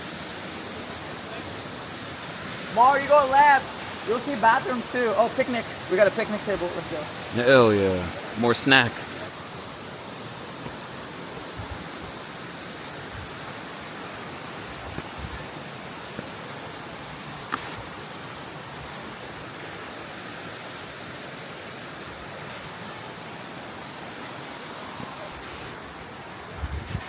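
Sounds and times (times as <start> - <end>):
creek water rushing: 0.0 - 27.0.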